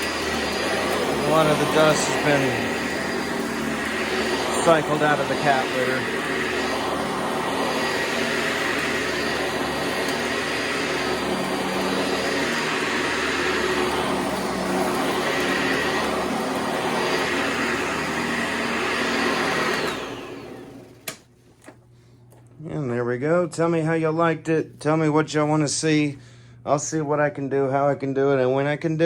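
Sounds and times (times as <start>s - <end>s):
cat litter being sucked up: 0.0s - 20.9s
vacuum cleaner running: 0.0s - 22.4s.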